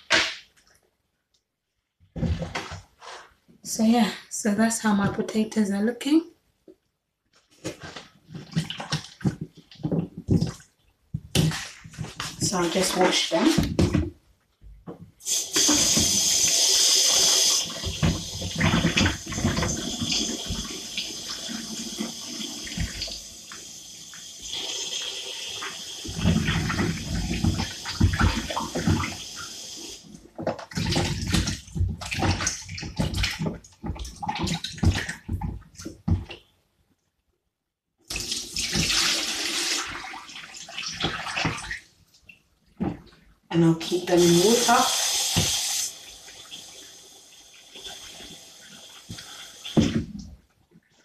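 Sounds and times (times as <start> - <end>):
water splashing: 11.4 - 13.9, 15.4 - 23.2, 25.6 - 29.5, 30.4 - 36.3, 38.1 - 43.3
tap running into a sink: 15.3 - 16.6, 45.2 - 45.8.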